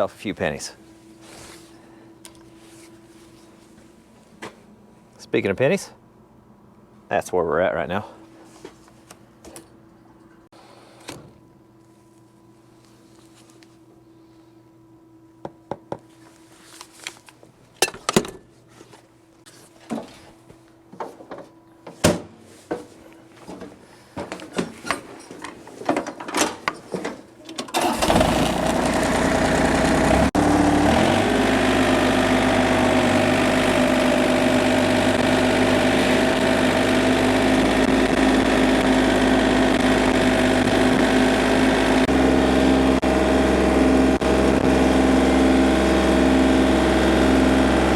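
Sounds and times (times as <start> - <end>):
diesel engine starting and idling: 27.7 - 47.9.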